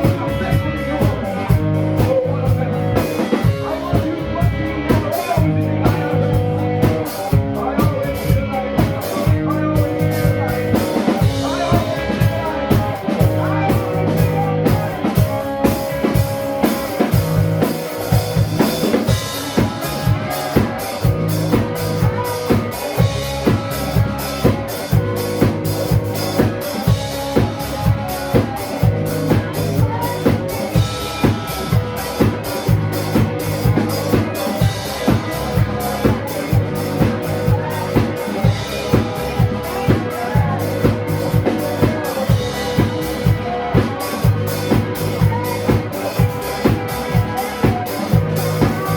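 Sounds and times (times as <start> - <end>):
drum kit beat: 0.0 - 48.9
live band playing instrumental: 0.0 - 48.9.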